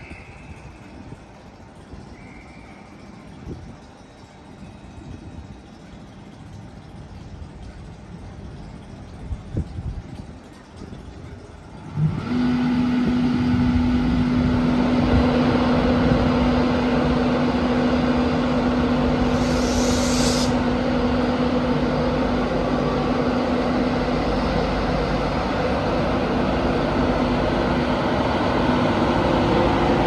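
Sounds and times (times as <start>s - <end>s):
train running with hum: 0.0s - 10.0s, 11.0s - 30.0s
hiss of air: 19.2s - 20.8s.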